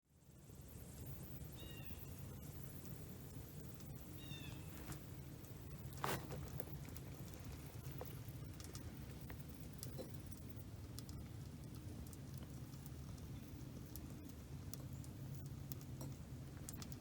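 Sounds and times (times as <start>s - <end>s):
small clicks and crackles: 0.6s - 17.0s
bird chirping: 4.1s - 4.9s.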